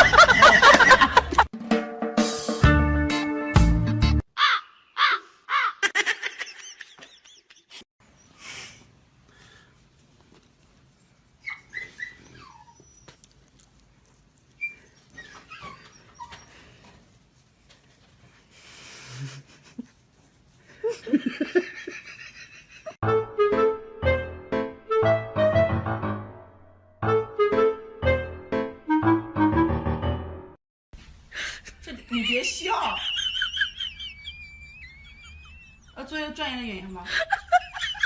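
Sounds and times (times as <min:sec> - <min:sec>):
dog whining: 0:11.4 - 0:13.7, 0:14.4 - 0:16.8.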